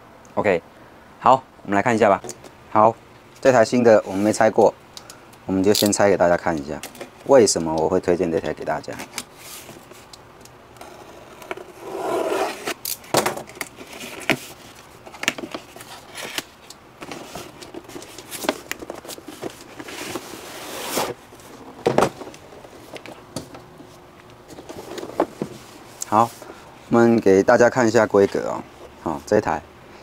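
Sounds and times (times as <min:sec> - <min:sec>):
packaging scraping: 0:10.8 - 0:12.8, 0:13.5 - 0:23.2
cardboard and plastic packaging rustling: 0:12.5 - 0:27.2.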